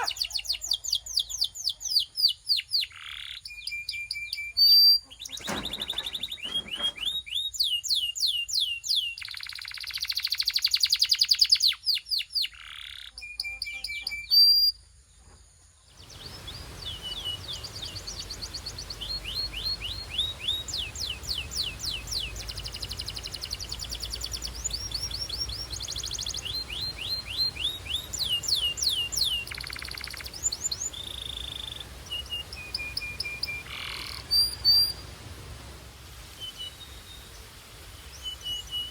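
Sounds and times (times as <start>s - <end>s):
canary singing: 0.0s - 7.4s, 16.0s - 35.0s
faint steady hiss: 0.0s - 38.9s.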